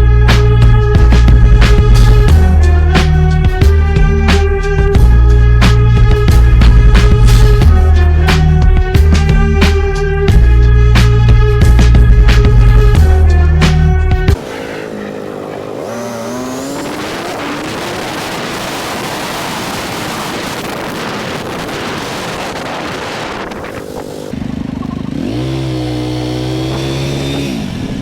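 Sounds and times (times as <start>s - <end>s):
motorcycle engine revving: 0.4s - 28.0s
wind and road noise: 10.4s - 28.0s.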